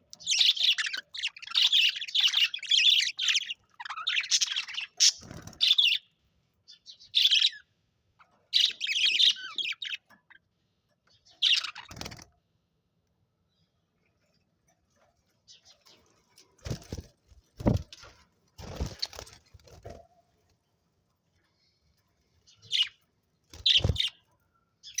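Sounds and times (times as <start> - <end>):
budgerigars chirping: 0.2 - 6.1, 6.7 - 7.6, 8.6 - 10.0, 11.4 - 12.1, 22.6 - 23.0, 23.6 - 24.2.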